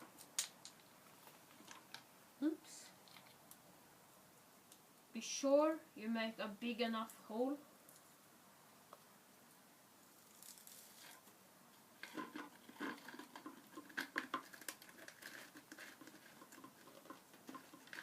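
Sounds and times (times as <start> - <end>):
plastic bottle clicks and crinkles: 12.0 - 18.0.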